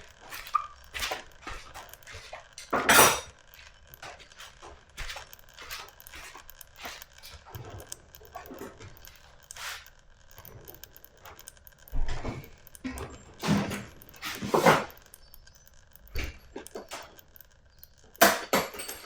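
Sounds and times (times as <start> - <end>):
small metal objects clinking: 0.0 - 19.0.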